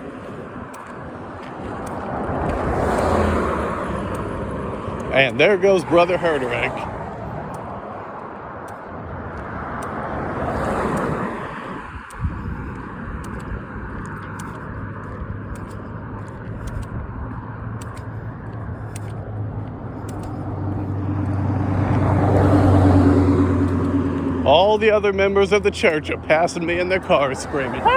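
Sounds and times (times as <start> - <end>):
footsteps on road: 0.0 - 27.9
vehicle engine humming: 0.0 - 27.9
car driving past: 2.0 - 5.0, 19.3 - 24.6.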